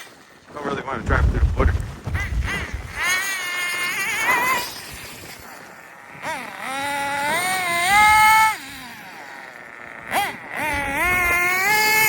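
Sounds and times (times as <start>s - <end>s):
model engine revving in a high whine: 2.2s - 12.0s.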